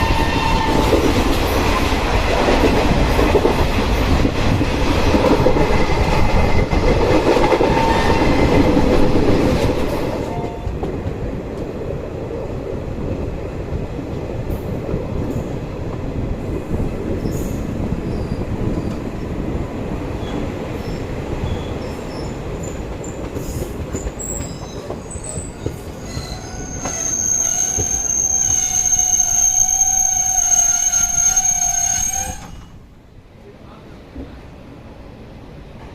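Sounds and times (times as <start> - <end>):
train rumbling on rails: 0.0 - 35.9
high steady squeal: 26.0 - 32.8.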